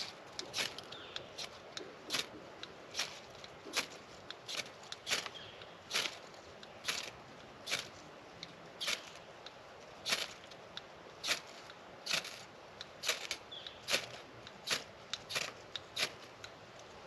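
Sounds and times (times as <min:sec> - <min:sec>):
knife scraping ferro rod: 0:00.0 - 0:07.1, 0:08.8 - 0:09.2, 0:11.2 - 0:12.4, 0:13.0 - 0:16.4.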